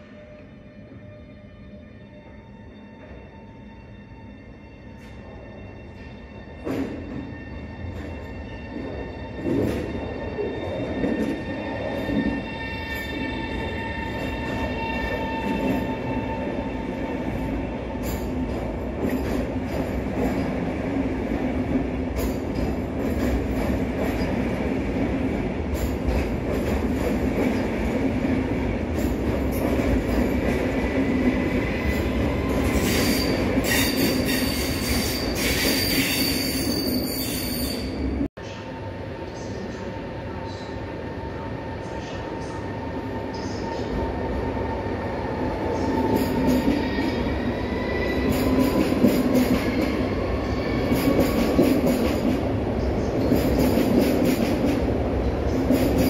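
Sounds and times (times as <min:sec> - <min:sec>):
train wheels rumbling on rail: 0:06.6 - 0:38.3, 0:45.3 - 0:56.0.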